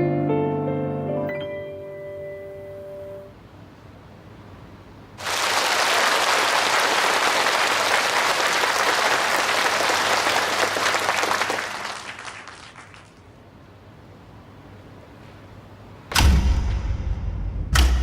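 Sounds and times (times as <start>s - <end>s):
audience applause: 5.2s - 13.3s.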